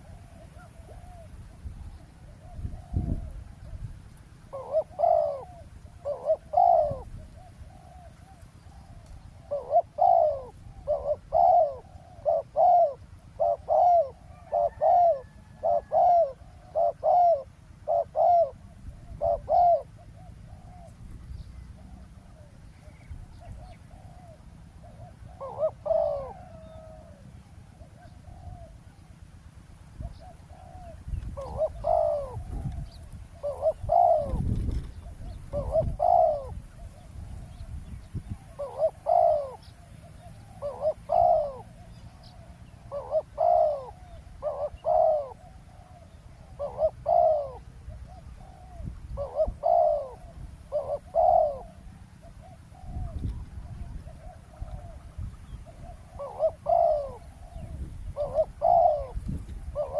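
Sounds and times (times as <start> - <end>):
dove cooing: 0.0 - 29.2, 29.9 - 59.9.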